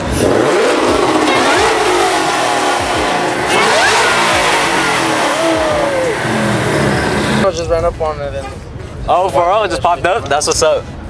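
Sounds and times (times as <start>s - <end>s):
car engines revving: 0.0s - 7.5s.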